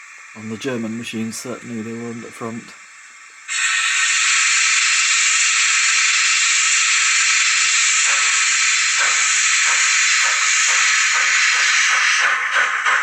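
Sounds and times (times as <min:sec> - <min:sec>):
steam hiss: 0:00.0 - 0:13.0
steam locomotive chuffs: 0:00.0 - 0:13.0.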